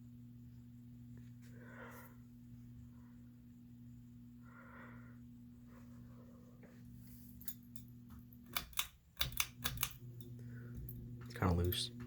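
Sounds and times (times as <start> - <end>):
ceiling fan motor humming: 0.0 - 12.0
sharp clicks: 8.5 - 10.3.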